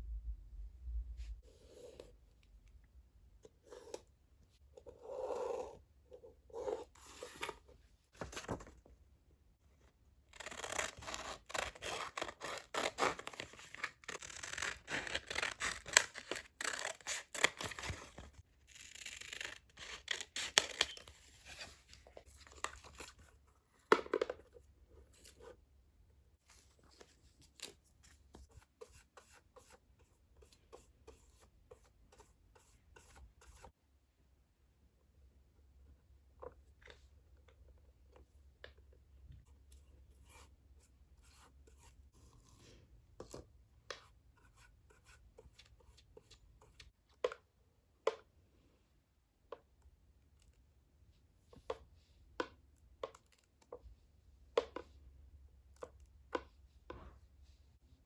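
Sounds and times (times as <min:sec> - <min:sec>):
scissors snipping paper: 0:10.3 - 0:21.1.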